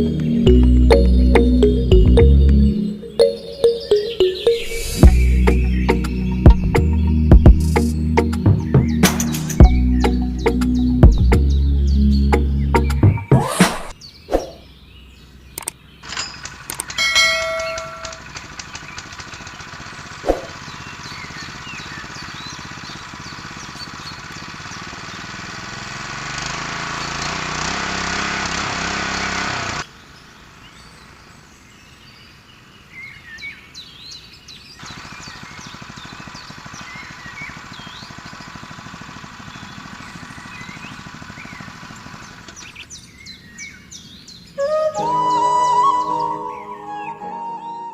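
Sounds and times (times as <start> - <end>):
birds chirping: 0.0 - 28.2, 28.9 - 47.9
outdoor background noise: 0.0 - 47.9
small motor running: 17.4 - 29.8, 34.8 - 42.9.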